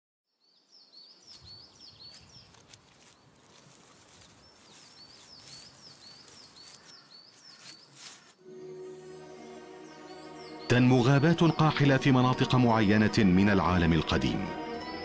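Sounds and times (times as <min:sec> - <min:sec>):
small bird chirping: 0:00.4 - 0:03.3, 0:04.0 - 0:08.4
steady outdoor hiss: 0:00.6 - 0:13.0.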